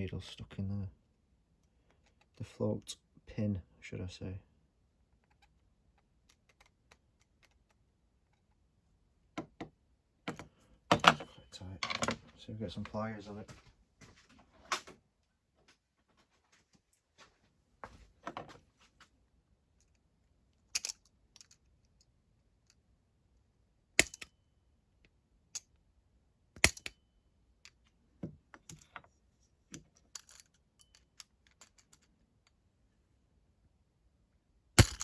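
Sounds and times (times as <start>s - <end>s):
pliers clicking and scraping on metal: 24.0s - 24.3s, 26.6s - 27.0s.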